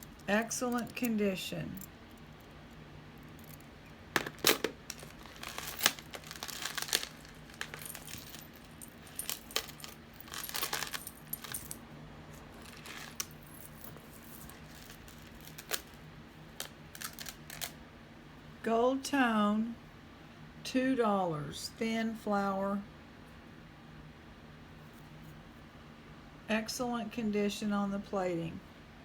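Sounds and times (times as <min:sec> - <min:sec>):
jewelry chains and beads clinking: 0:00.0 - 0:01.9, 0:03.3 - 0:16.0, 0:16.6 - 0:17.7.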